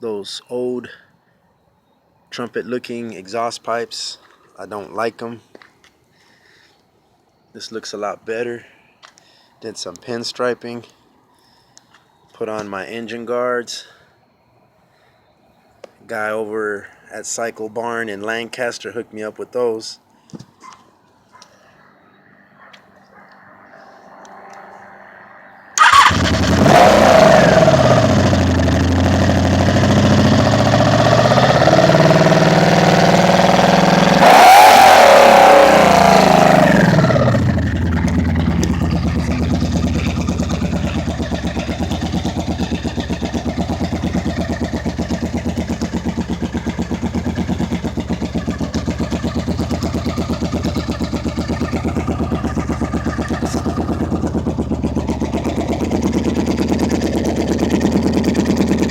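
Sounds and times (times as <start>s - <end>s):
motorcycle engine starting and revving: 25.8s - 58.9s.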